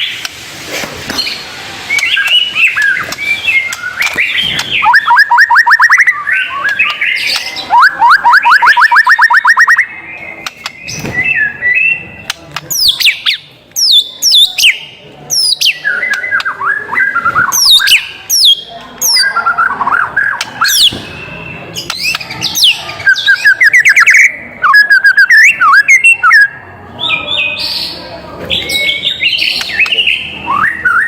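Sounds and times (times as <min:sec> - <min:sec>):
songbird whistling song: 0:01.2 - 0:31.0
bird chattering: 0:12.3 - 0:21.0.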